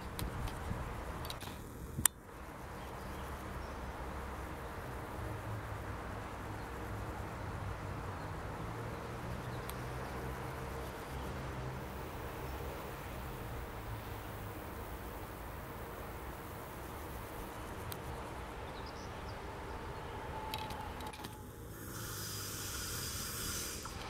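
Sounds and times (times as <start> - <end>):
outdoor background noise: 0.0 - 24.0
electric train hum and rumble: 8.1 - 24.0.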